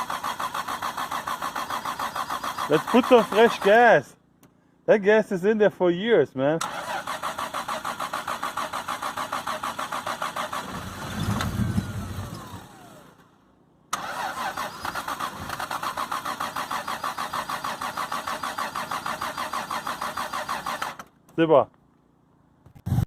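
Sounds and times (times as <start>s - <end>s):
engine cranking on starter: 0.0s - 3.8s, 6.6s - 21.2s
engine firing briefly: 9.6s - 12.9s.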